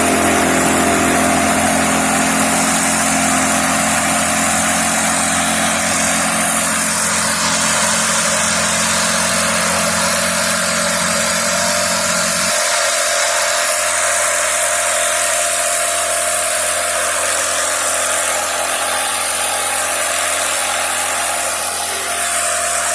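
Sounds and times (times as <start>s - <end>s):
boat motor running: 0.0s - 22.9s.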